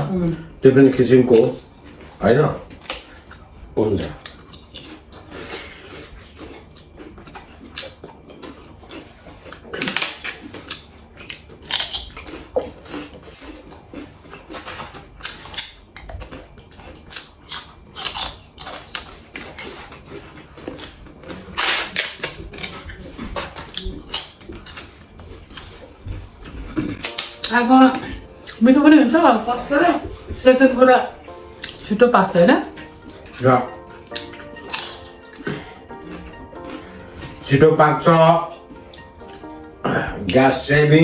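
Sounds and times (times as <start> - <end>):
scraping noises: 25.2 - 39.7
cutlery and dishes clinking: 26.8 - 28.7, 32.7 - 39.5.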